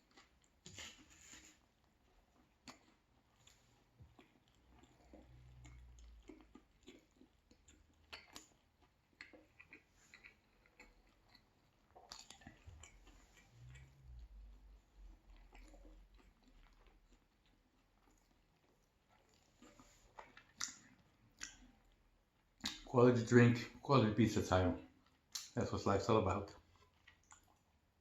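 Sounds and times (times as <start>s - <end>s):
chewing food: 0.0s - 28.0s
wet mouth clicks: 12.0s - 16.7s, 19.6s - 22.0s, 22.6s - 22.9s, 25.2s - 25.6s.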